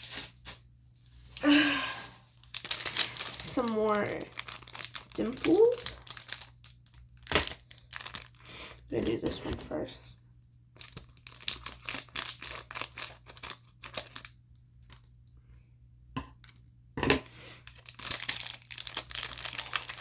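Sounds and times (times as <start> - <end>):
plastic packaging tearing and crinkling: 2.3 - 9.4, 10.8 - 15.0, 17.6 - 20.0.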